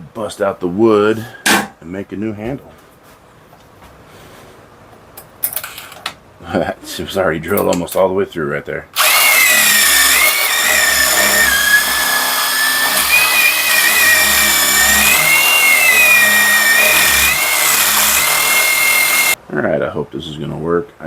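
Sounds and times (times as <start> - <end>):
power tool high whine: 9.0 - 19.4.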